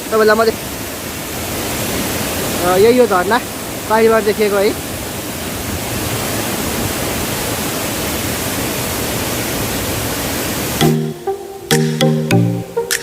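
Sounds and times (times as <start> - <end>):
waterfall roaring: 0.0 - 11.7
music: 10.8 - 13.0.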